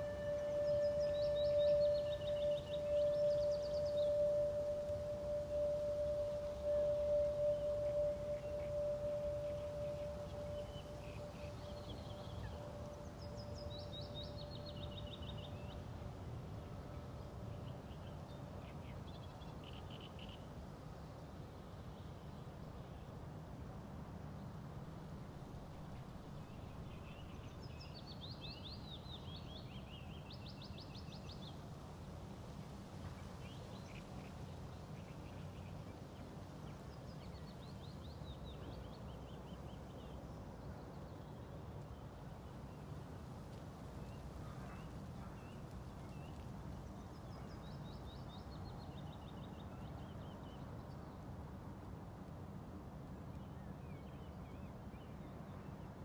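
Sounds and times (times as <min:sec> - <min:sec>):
songbird singing trilled phrases: 0:00.0 - 0:15.8.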